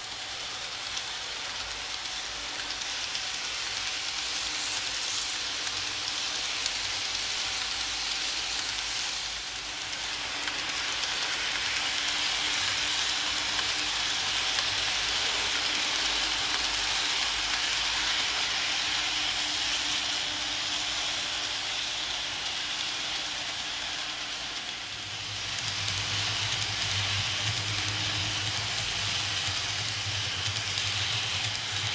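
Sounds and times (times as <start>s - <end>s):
model train wheels rattling: 0.0s - 31.9s.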